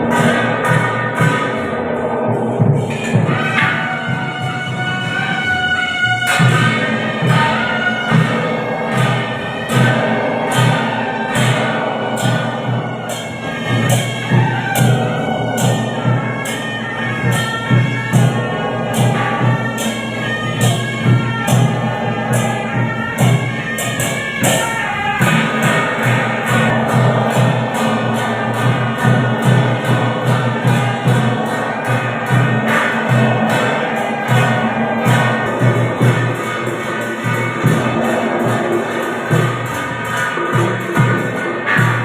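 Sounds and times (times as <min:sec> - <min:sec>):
cymbal crashes: 0:00.0 - 0:42.0
drums pulsing: 0:00.0 - 0:42.0.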